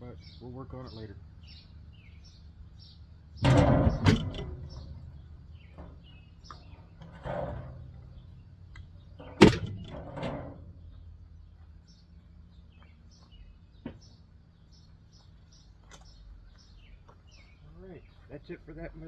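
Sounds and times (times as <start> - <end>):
birds chirping: 0.0 - 19.0
sharp knock of part dropped: 9.2 - 10.6.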